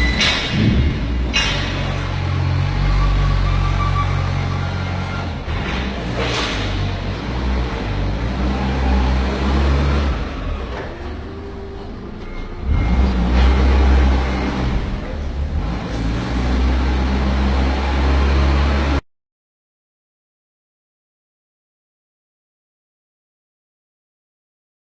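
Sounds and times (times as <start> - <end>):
forklift engine revving: 0.0 - 19.0.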